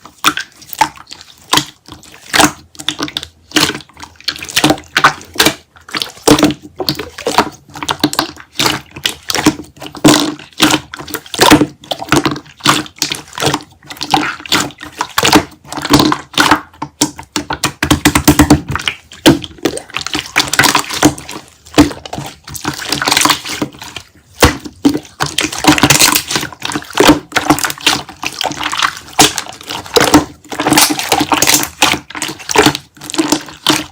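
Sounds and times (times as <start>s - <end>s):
slime squished by hand: 0.0s - 33.9s.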